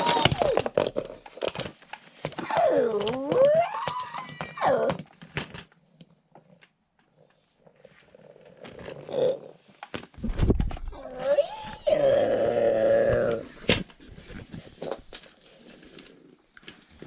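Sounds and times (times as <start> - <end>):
plastic toys clicking: 0.0 - 6.7.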